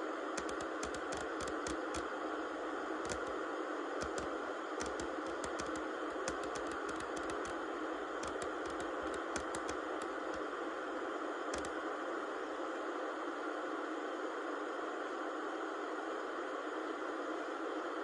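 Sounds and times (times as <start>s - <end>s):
steady white noise: 0.0s - 18.0s
light clicks or taps: 0.4s - 2.0s, 3.1s - 3.3s, 4.0s - 7.6s, 8.2s - 10.4s, 11.6s - 11.8s.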